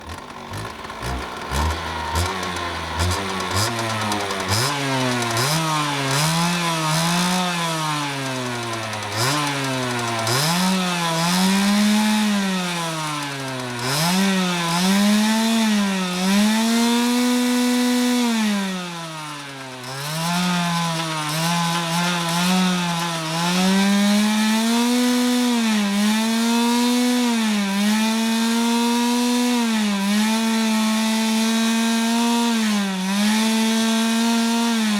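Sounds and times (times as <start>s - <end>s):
dirt bike engine revving: 0.0s - 27.2s.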